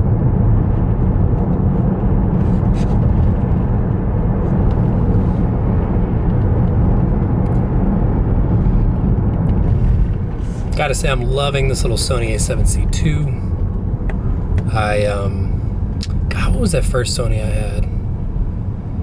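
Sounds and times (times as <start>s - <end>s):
road and tyre noise: 0.0s - 19.0s.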